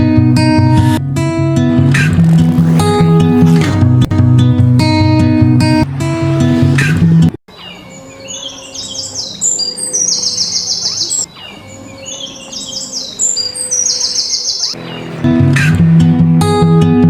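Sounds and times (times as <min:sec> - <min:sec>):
songbird singing with trill: 0:07.5 - 0:15.2.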